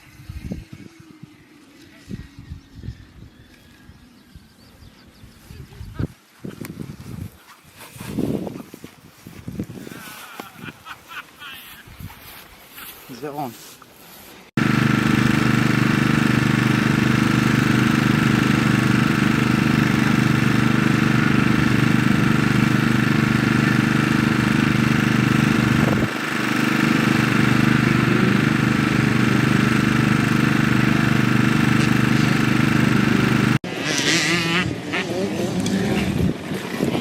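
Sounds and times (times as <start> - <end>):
motocross bike engine: 14.6 - 37.0.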